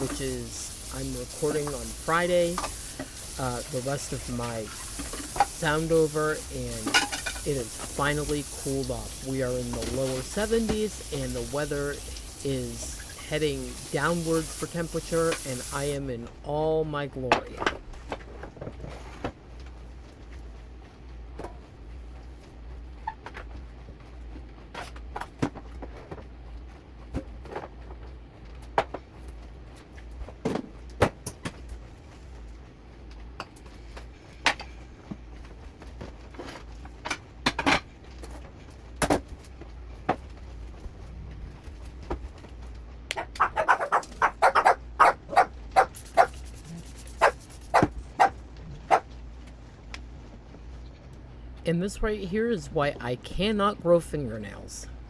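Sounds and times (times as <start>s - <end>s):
dog barking: 43.3s - 46.4s, 47.2s - 49.1s.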